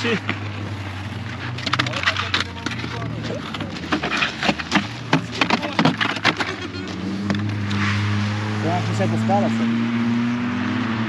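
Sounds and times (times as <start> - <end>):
car engine running: 0.0 - 10.2
sharp knocks and clatter: 1.3 - 7.8.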